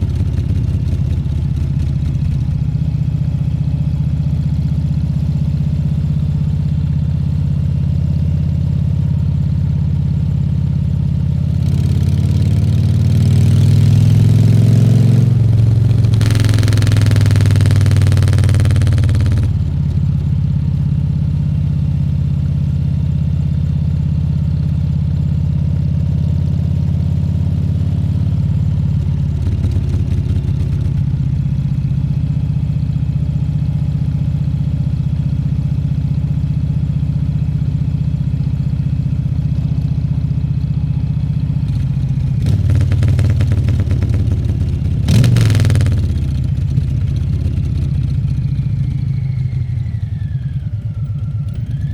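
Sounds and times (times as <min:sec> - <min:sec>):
motorcycle engine rumbling: 0:00.0 - 0:04.1, 0:12.4 - 0:21.6, 0:28.4 - 0:31.8, 0:40.7 - 0:51.9.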